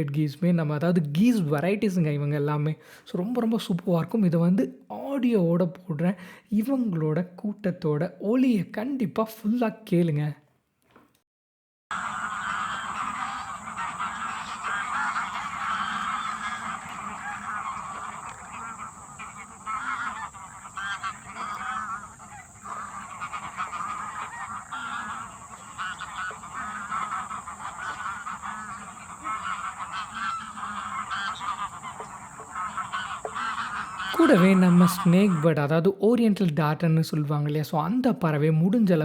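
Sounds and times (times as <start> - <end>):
geese honking: 11.9 - 36.0.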